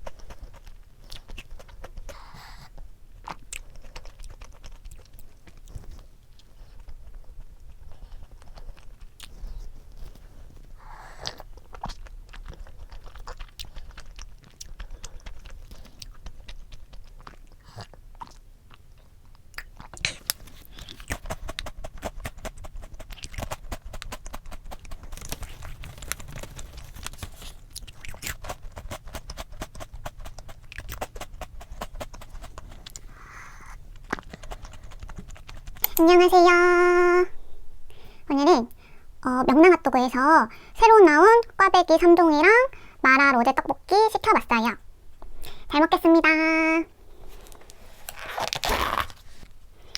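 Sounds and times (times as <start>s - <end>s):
person chewing crunchy food: 0.0s - 36.0s.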